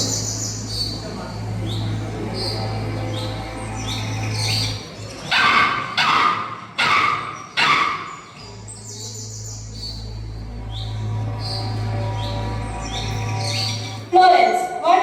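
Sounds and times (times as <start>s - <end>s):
steady low hum: 0.0s - 14.2s
birds chirping: 0.0s - 15.0s
dog barking: 5.3s - 8.2s.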